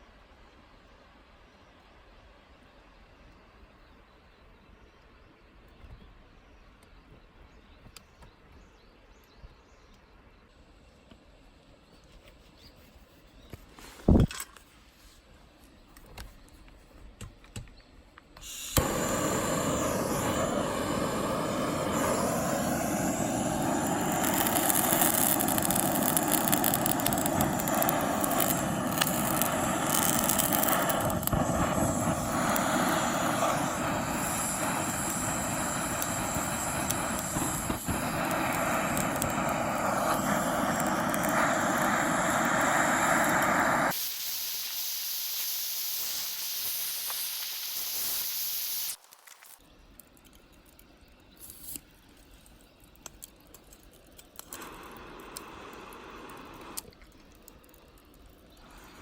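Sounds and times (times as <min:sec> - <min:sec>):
loud steady rushing hiss: 0:00.0 - 0:04.0, 0:18.4 - 0:49.6, 0:54.2 - 0:59.0
small clicks: 0:48.9 - 0:58.9.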